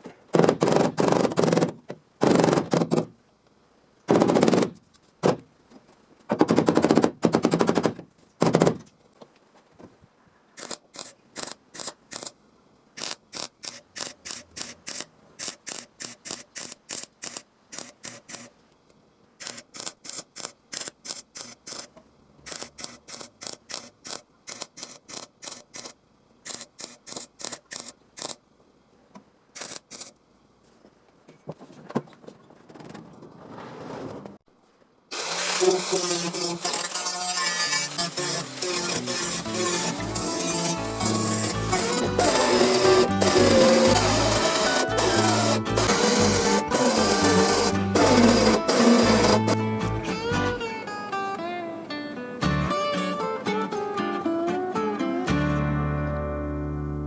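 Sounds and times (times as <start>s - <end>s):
welder arc crackling sizzle: 35.2s - 49.6s.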